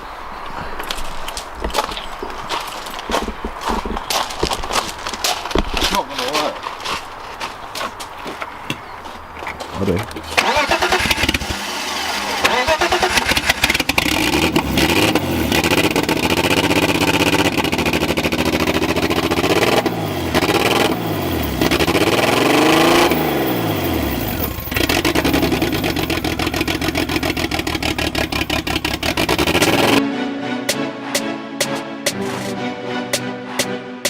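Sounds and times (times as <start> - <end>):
car engine revving: 10.3 - 30.0.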